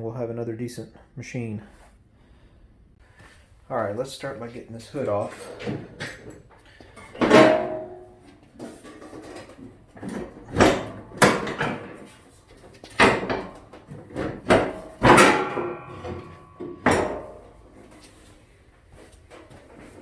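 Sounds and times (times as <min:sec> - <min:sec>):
metal hood clunking and rattling: 0:07.0 - 0:18.3.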